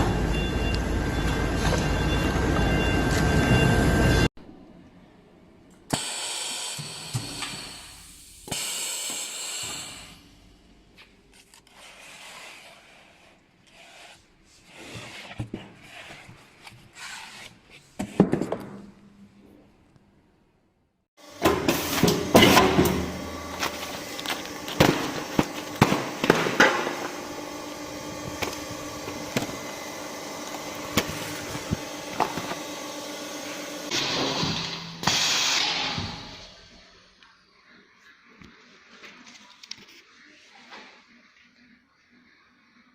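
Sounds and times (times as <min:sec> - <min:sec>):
machine hissing: 0:05.9 - 0:10.2.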